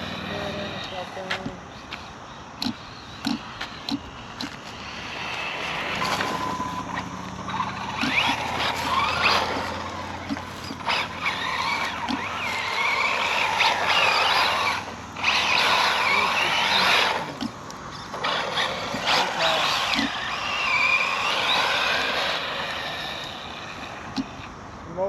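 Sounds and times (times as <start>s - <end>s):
rc car motor whine: 0.0s - 25.0s
tyres hissing on sand: 4.4s - 24.1s.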